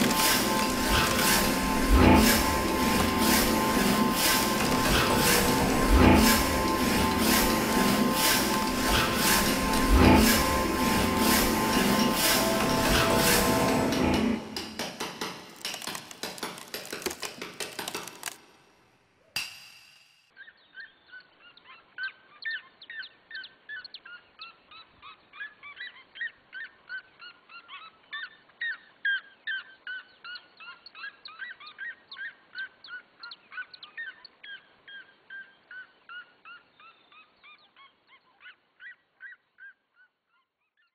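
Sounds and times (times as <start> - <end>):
flock of birds chirping: 0.0 - 13.9, 20.4 - 40.9.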